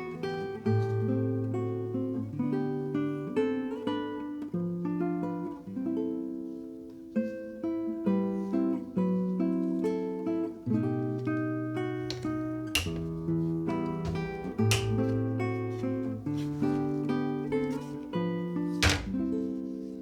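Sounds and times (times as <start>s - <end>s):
acoustic guitar plucking chords: 11.8s - 18.2s.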